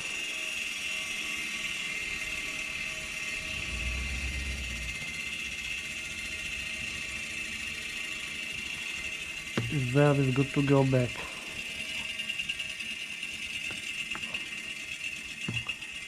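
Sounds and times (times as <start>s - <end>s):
mechanical whir with high whine: 0.0s - 16.0s
brief low rumble: 3.0s - 7.9s.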